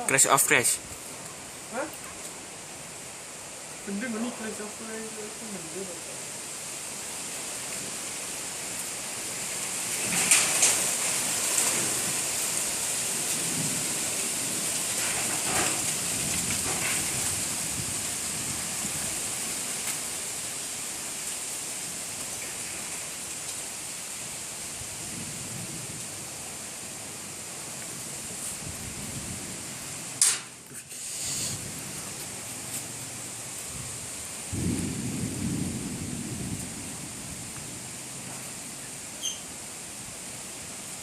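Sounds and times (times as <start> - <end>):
strong gusty wind rushing: 15.2 - 19.4.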